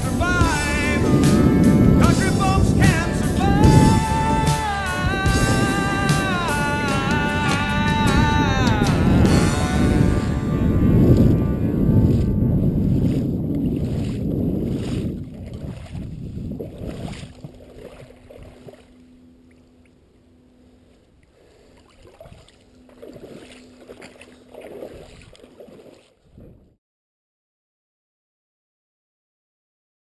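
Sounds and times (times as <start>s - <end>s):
wind on microphone: 0.0s - 18.8s, 24.7s - 26.8s
steady low hum: 0.0s - 25.9s
boat motor running: 0.0s - 26.2s.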